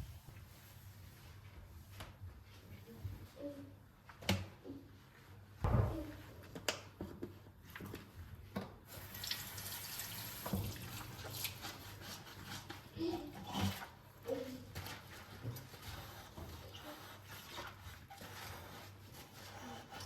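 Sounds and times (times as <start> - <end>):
tap water running into sink: 8.9 - 11.8.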